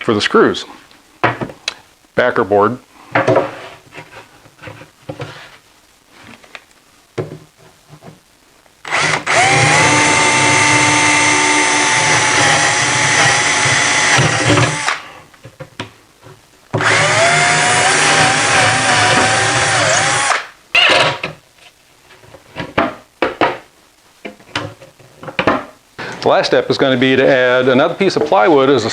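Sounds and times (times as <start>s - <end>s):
electric drill whining: 8.8s - 15.0s, 16.8s - 20.5s.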